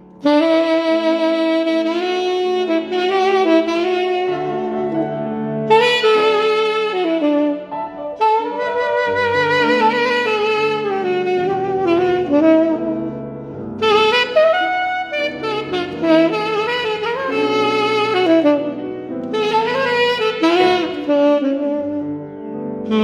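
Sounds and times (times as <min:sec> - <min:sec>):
grand piano chords: 0:00.0 - 0:23.0
saxophone playing slow melody: 0:00.0 - 0:23.0.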